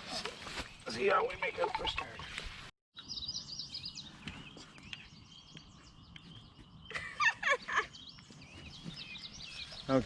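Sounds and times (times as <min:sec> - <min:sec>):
songbirds chirping and warbling: 0:00.0 - 0:10.0.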